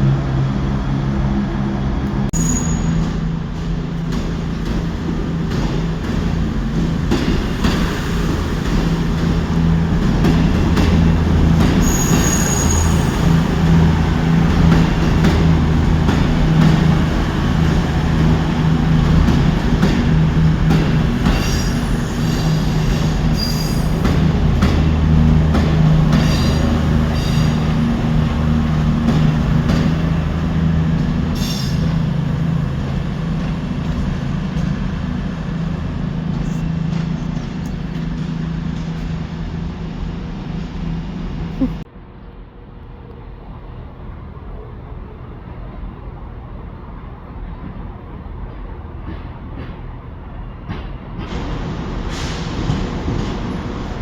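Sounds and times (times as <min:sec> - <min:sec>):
train low drone: 0:00.0 - 0:54.0
high-pitched wheel squeals: 0:02.4 - 0:03.1, 0:11.8 - 0:13.3.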